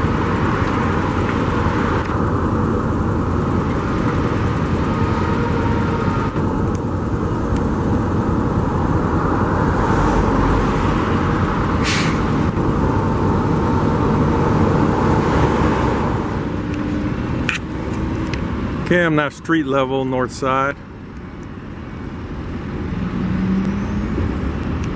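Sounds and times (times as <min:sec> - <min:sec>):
truck engines rumbling: 0:00.0 - 0:24.9
sharp hiss: 0:11.8 - 0:12.3.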